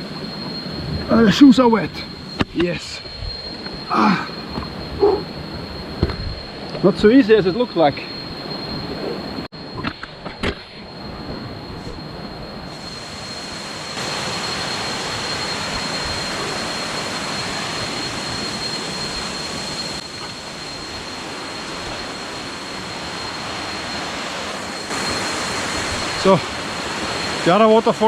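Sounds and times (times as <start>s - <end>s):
waterfall rushing: 21.1s - 28.0s.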